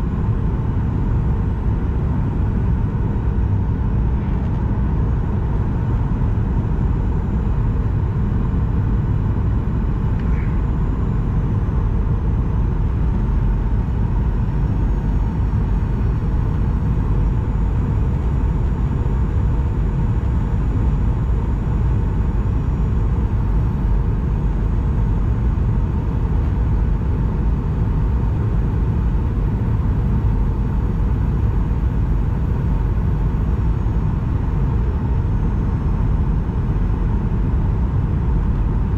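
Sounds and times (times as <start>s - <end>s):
airliner cabin rumble: 0.0s - 38.9s
faint steady hum: 0.0s - 38.9s.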